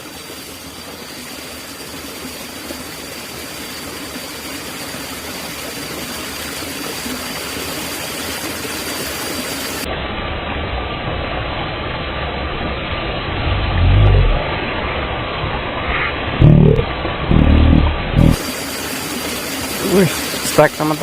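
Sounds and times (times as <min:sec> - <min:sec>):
steady rushing noise: 0:06.1 - 0:21.0.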